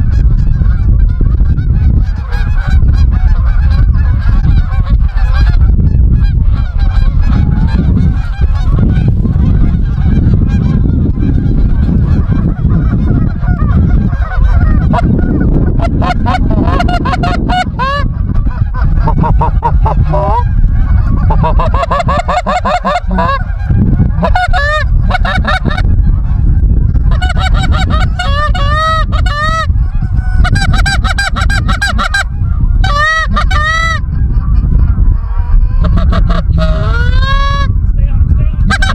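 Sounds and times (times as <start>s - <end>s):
geese honking: 0.0s - 37.7s, 38.6s - 38.9s
steady low rumble: 0.0s - 38.9s.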